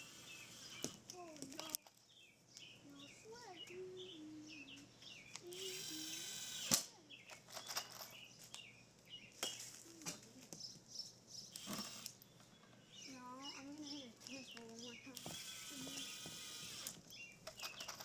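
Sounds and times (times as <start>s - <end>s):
mechanical whir: 0.0s - 1.0s, 5.5s - 6.9s, 11.5s - 12.2s, 15.2s - 17.0s
birds chirping: 0.0s - 18.0s
sharp click: 6.6s - 7.0s.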